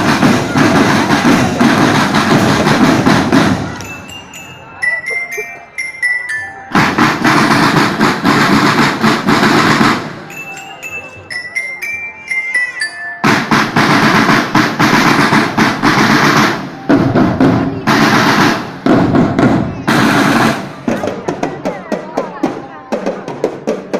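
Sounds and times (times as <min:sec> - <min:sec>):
snare and bass drum rolls: 0:00.0 - 0:04.4, 0:06.7 - 0:10.4, 0:13.2 - 0:23.9
glockenspiel phrases: 0:03.7 - 0:07.3, 0:10.1 - 0:13.8.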